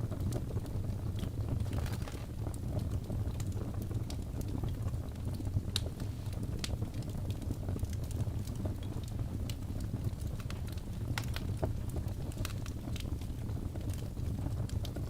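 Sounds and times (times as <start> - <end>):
logs crackling and popping: 0.0 - 15.0
low rumble of flames: 0.0 - 15.0.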